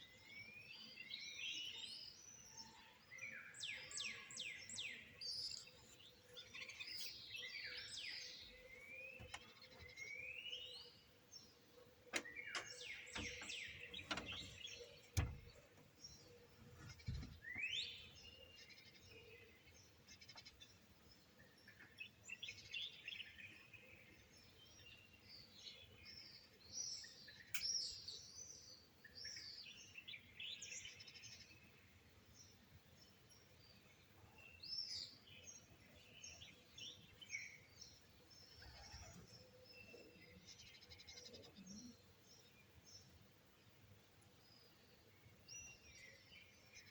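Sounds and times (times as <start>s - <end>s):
songbirds singing and chirping: 0.0s - 46.9s
sharp clicks or knocks: 12.1s - 15.9s.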